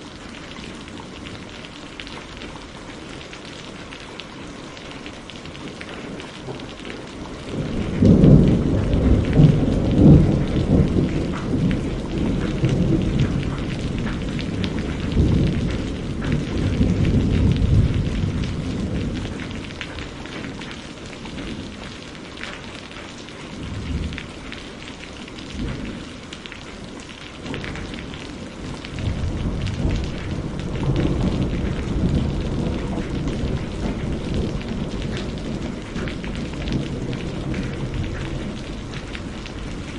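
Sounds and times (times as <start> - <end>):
steady rain: 0.0 - 39.9
rolling thunder: 7.4 - 20.1, 27.5 - 39.9.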